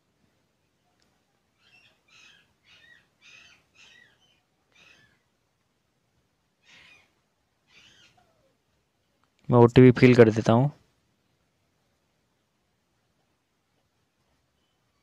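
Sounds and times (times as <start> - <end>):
faint harsh bird calls: 0.6 - 5.5, 6.4 - 9.2, 13.2 - 15.0.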